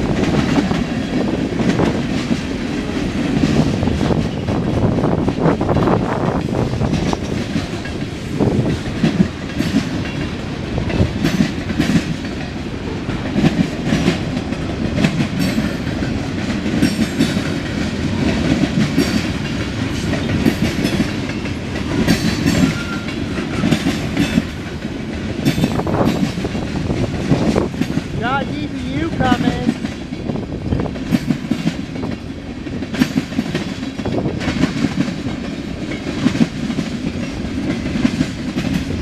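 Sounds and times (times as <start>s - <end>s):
steel wheels rumbling on rail: 0.0s - 39.0s.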